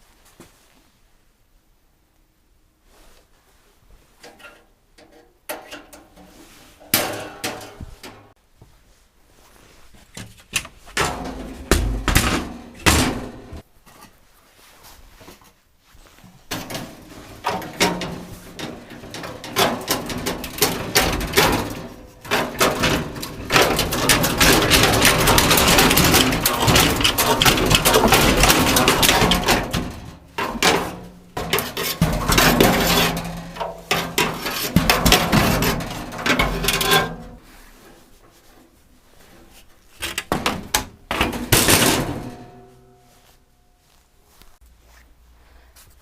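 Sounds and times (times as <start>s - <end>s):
continuous rattling and banging: 4.0s - 8.4s, 9.4s - 43.2s
knocks thuds and bangs: 11.0s - 13.6s, 16.5s - 36.8s.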